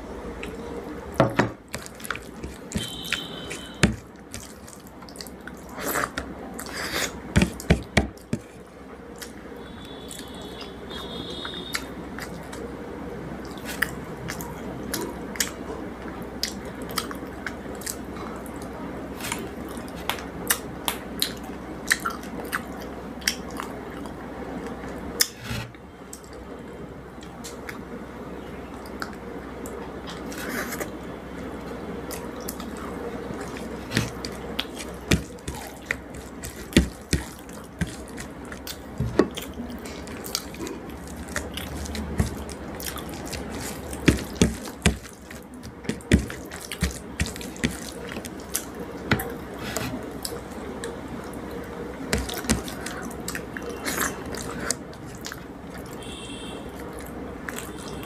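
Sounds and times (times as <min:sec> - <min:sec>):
wet chewing and mouth smacks: 0:01.8 - 0:06.8, 0:32.1 - 0:49.4.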